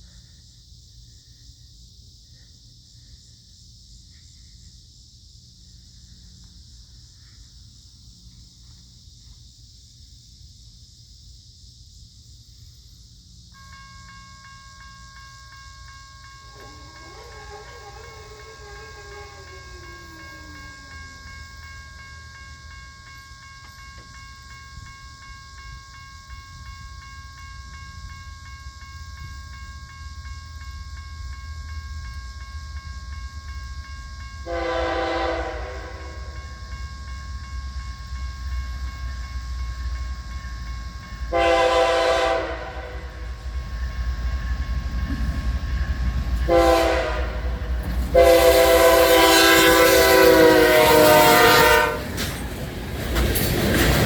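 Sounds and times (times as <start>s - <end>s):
diesel locomotive rumble: 13.5s - 54.0s
locomotive air horn blasts: 34.4s - 36.3s, 41.3s - 43.4s, 46.4s - 52.2s.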